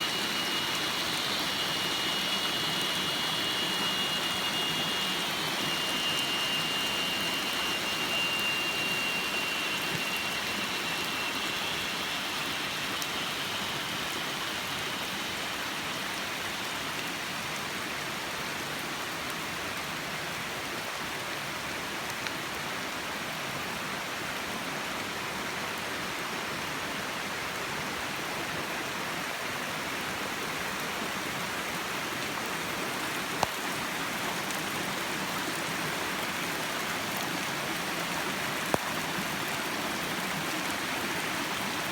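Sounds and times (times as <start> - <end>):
thin high whine: 0.0 - 18.8
heavy rain falling: 0.0 - 19.2, 28.6 - 41.9.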